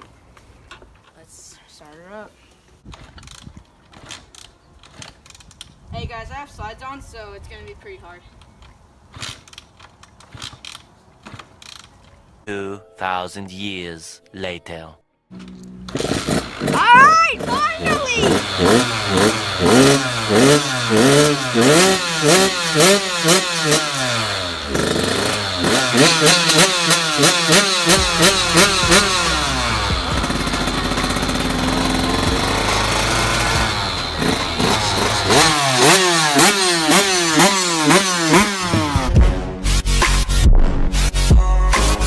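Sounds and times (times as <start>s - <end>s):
dirt bike engine revving: 15.8s - 39.4s.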